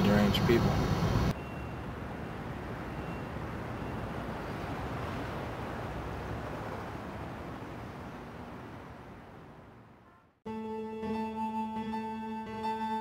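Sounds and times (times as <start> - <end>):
car interior rumble and hiss: 0.0 - 1.4.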